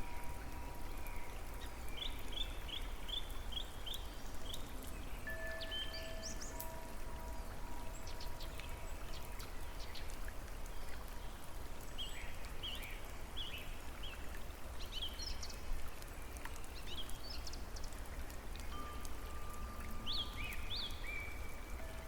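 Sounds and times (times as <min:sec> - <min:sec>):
running water rushing: 0:00.0 - 0:22.0
small birds chirping: 0:07.9 - 0:22.0.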